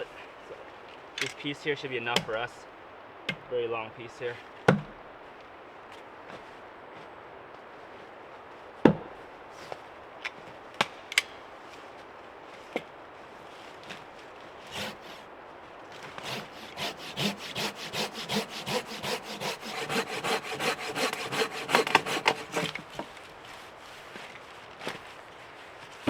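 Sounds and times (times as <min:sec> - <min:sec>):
hand saw cutting log: 0:14.7 - 0:15.2, 0:16.0 - 0:23.3.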